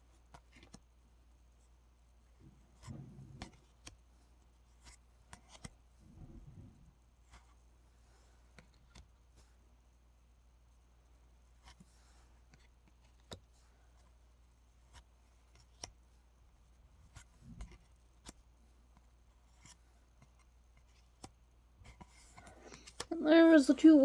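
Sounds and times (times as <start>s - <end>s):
trading cards and packaging handled: 2.5s - 5.8s, 17.0s - 23.1s.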